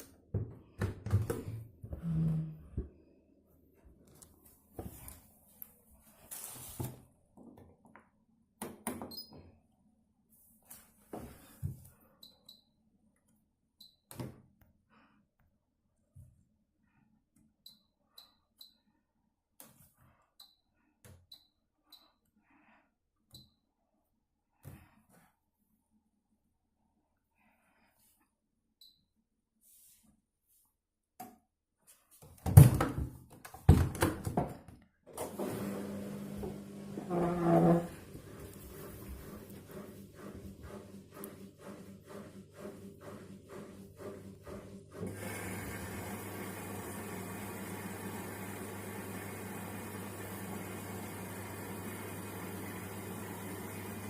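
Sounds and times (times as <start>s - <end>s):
washing machine thuds and knocks: 32.4s - 34.6s
washing machine running hum: 35.1s - 54.0s.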